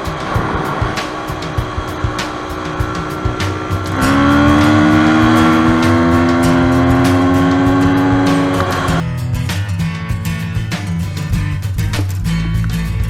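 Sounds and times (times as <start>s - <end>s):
dirt bike engine revving: 0.0s - 9.0s
background music with beat: 0.0s - 13.0s.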